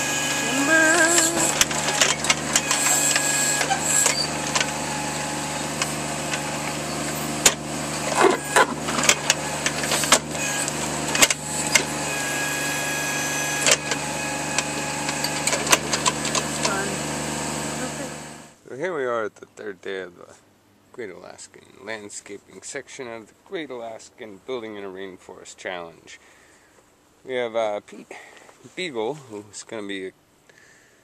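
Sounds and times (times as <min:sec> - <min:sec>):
knocks and clanks: 0:00.0 - 0:12.2, 0:13.5 - 0:16.9
digging machine engine running: 0:00.0 - 0:18.6.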